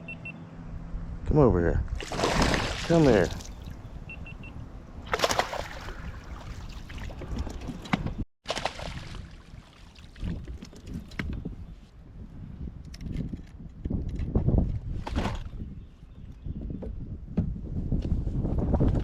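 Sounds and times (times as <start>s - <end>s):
wind rumble on microphone: 0.6s - 8.2s, 9.0s - 19.0s
water splashing around a kayak: 2.0s - 3.7s, 5.1s - 11.0s.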